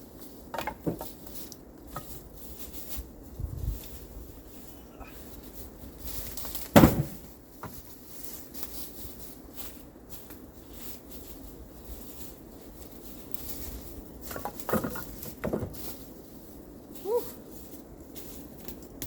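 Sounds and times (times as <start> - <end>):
low background noise: 0.0 - 19.0
dull thumps: 6.6 - 7.8.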